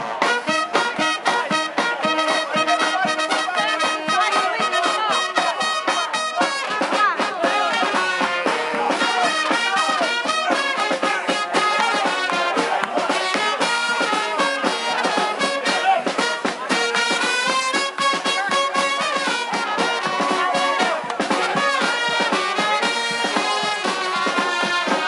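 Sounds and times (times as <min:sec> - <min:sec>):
brass band playing: 0:00.0 - 0:25.0.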